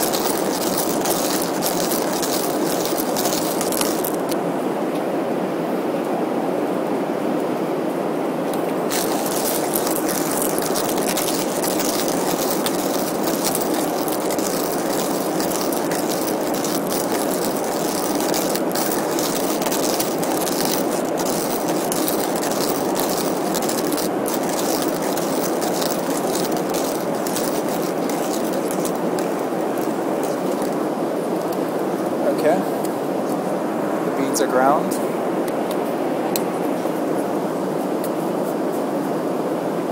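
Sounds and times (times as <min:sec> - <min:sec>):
hand grinder crunching coffee beans: 0:00.0 - 0:04.4, 0:08.9 - 0:30.8.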